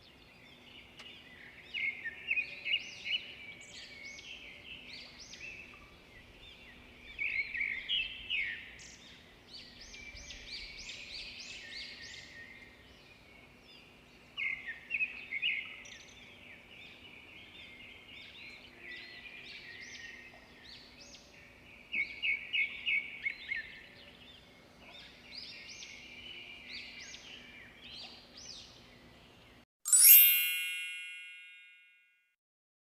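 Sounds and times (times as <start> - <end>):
small birds chirping: 0.0 - 30.2
bright chime: 29.9 - 32.2.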